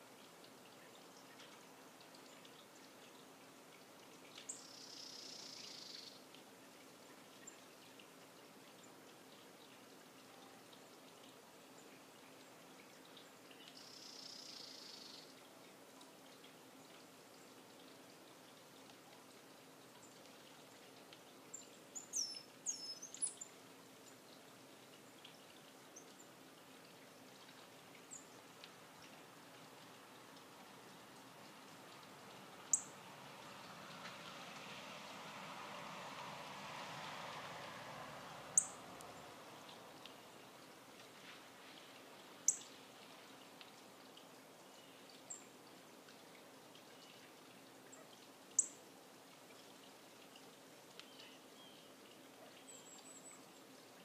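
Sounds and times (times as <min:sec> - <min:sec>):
small songbirds chirping: 0:00.0 - 0:15.5, 0:16.2 - 0:34.4, 0:38.3 - 0:48.8, 0:49.6 - 0:54.0
faint bird chirps: 0:04.5 - 0:06.2, 0:13.5 - 0:15.4.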